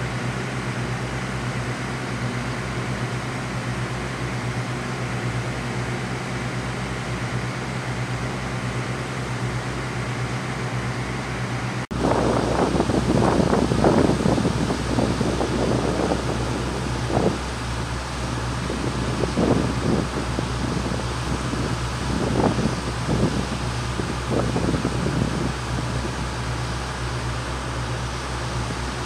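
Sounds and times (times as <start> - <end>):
wind on microphone: 11.9 - 29.0.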